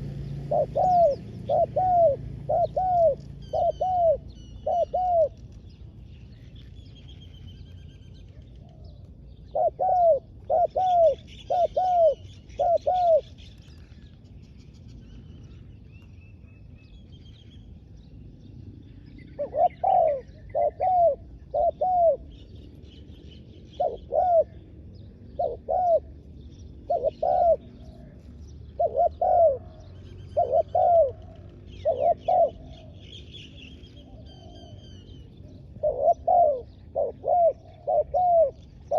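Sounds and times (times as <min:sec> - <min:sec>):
dove cooing: 0:00.0 - 0:05.6, 0:08.6 - 0:13.6, 0:19.4 - 0:22.8, 0:23.7 - 0:38.9
small birds chirping: 0:00.0 - 0:38.9.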